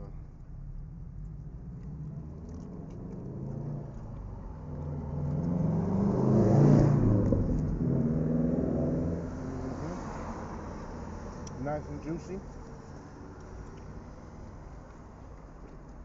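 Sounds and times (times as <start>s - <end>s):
car passing by: 4.6s - 14.5s.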